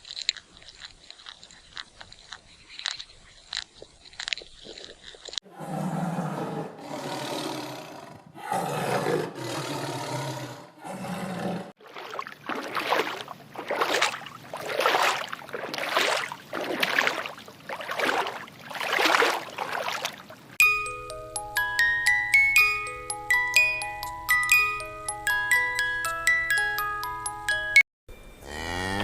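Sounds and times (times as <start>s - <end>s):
animal growling: 5.5s - 11.8s.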